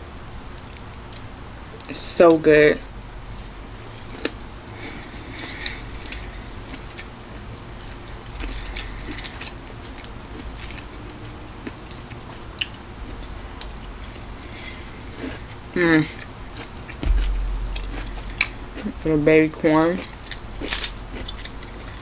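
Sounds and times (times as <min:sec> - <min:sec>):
person chewing food: 0:16.1 - 0:19.0, 0:20.0 - 0:22.0.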